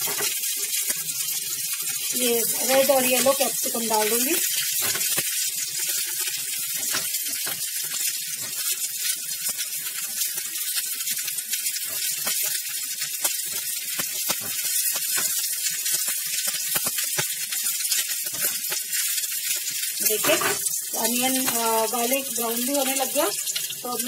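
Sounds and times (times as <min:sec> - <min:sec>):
food sizzling in oil: 0:00.0 - 0:24.0
spatula scraping and tapping pan: 0:04.5 - 0:11.1, 0:11.7 - 0:19.0, 0:20.0 - 0:21.7.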